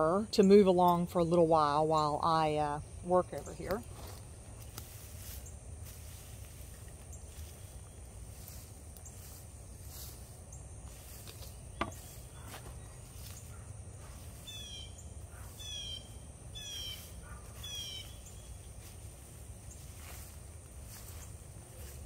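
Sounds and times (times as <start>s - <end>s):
insect hum: 0.0s - 22.0s
rustle of dry hay: 3.5s - 22.0s
bird calling: 11.6s - 18.9s.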